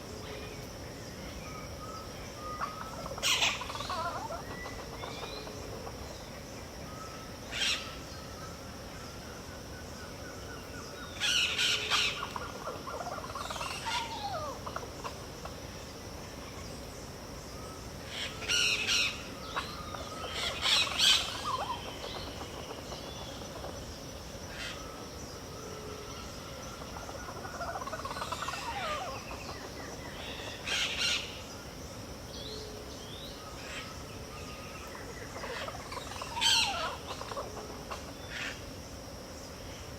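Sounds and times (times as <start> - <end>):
whistled gliding bird calls: 1.2 - 15.2, 17.5 - 23.9, 24.5 - 31.7, 32.4 - 38.6
harsh bird calls: 2.4 - 6.0, 34.5 - 38.7.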